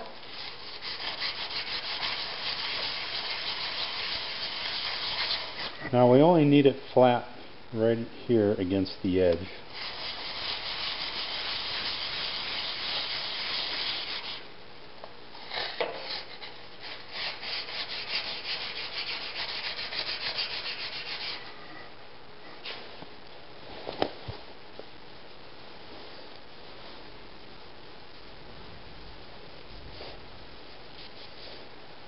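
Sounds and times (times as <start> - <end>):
chisel rubbed on sandpaper: 0.3 - 5.8, 9.7 - 14.4, 15.6 - 21.5.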